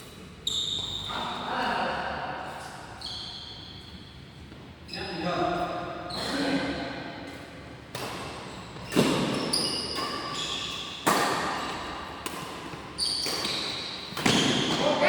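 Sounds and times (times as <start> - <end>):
rackets hitting shuttlecock: 7.9 - 14.9.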